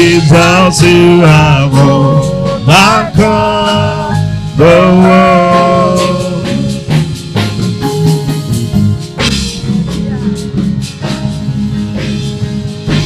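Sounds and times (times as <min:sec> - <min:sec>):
person singing: 0:00.0 - 0:07.0
bass line: 0:00.0 - 0:13.0
drum kit strokes: 0:00.0 - 0:13.0.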